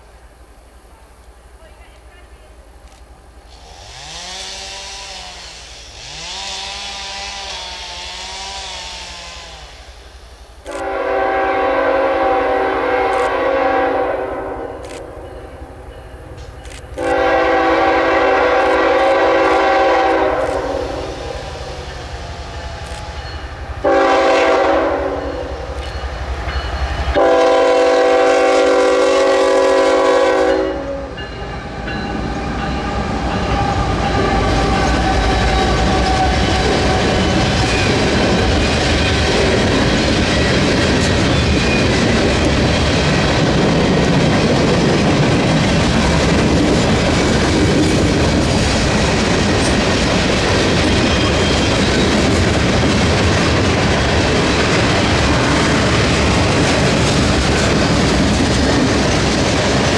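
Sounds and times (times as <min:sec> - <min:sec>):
locomotive air horn: 0:03.7 - 0:09.9, 0:10.7 - 0:14.9, 0:17.0 - 0:21.6, 0:23.8 - 0:25.6, 0:27.2 - 0:31.2
train wheels clattering on rails: 0:31.1 - 0:59.9.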